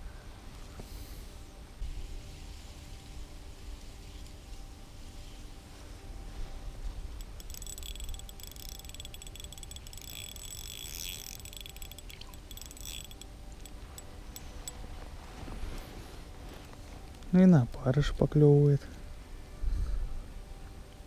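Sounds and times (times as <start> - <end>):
spinning reel ticking: 7.2 - 14.8
wind rumble on microphone: 19.0 - 21.0.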